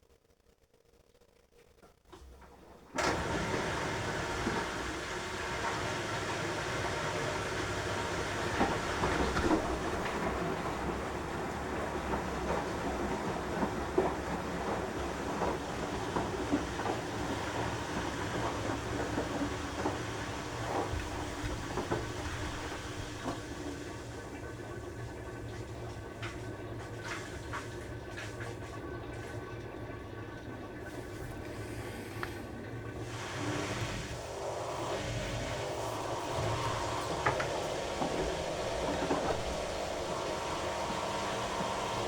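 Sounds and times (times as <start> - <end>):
washing machine running: 2.1 - 42.0
drum rumbling: 33.8 - 42.0.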